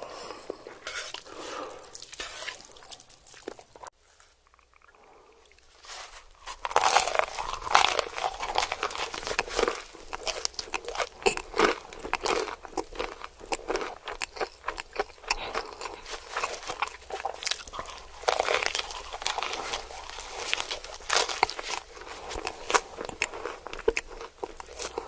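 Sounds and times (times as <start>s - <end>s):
crunchy bites and chewing: 5.6s - 25.0s.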